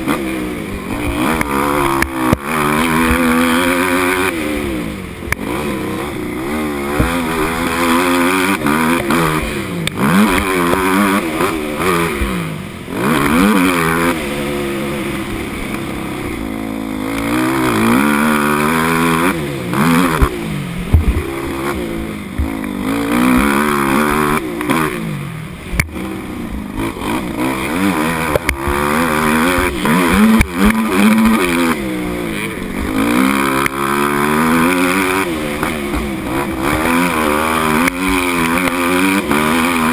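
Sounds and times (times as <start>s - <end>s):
dirt bike engine revving: 0.0s - 39.9s
sharp knocks: 20.1s - 21.3s.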